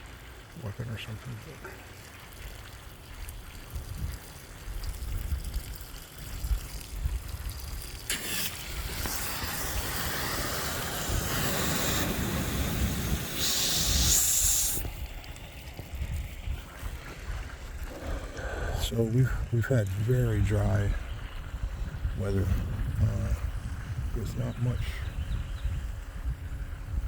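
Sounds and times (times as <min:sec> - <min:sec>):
garden hose spraying water: 0:00.0 - 0:17.8
low wind rumble on microphone: 0:03.1 - 0:08.0, 0:08.6 - 0:27.0.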